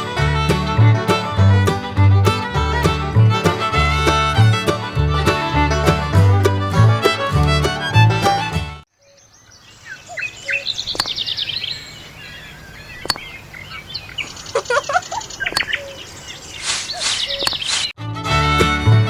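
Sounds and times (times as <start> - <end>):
birds chirping and singing: 9.0 - 18.0
sharp clicks: 11.0 - 11.3, 13.0 - 13.4, 16.6 - 18.0.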